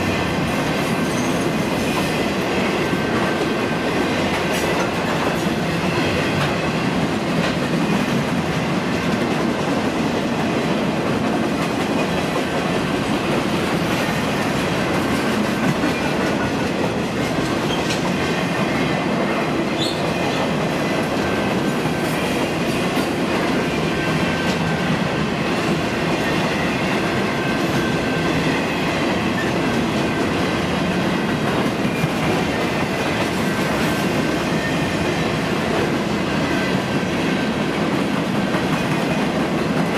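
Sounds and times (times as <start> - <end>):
wheels rumbling on rail: 0.0 - 39.9
clicks and clacks: 14.9 - 18.3.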